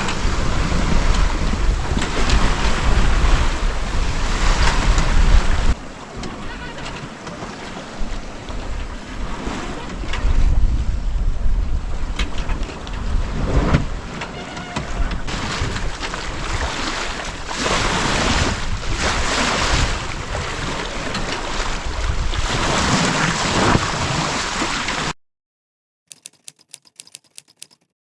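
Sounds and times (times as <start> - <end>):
sea water rushing: 15.3 - 25.1.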